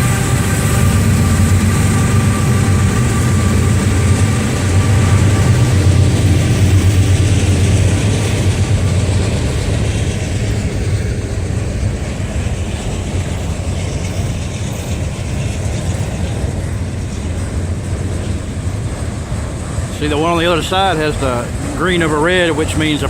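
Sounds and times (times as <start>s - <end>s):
low diesel drone: 0.0s - 23.0s
train wheels clattering on rails: 0.0s - 23.0s.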